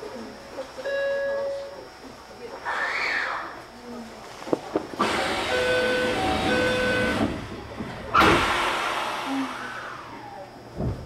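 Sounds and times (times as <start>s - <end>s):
loud thump: 8.2s - 9.0s
train hiss: 8.2s - 10.2s.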